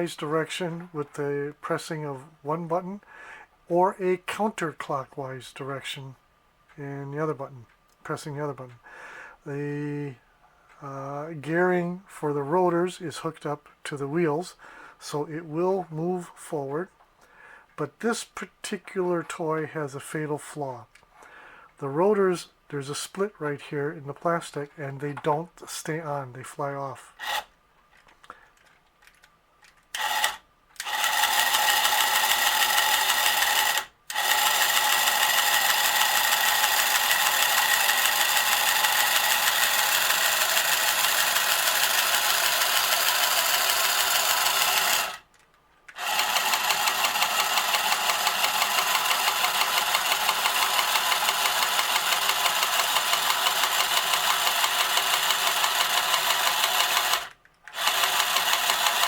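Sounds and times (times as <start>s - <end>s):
toy motor whirring: 27.1s - 59.0s.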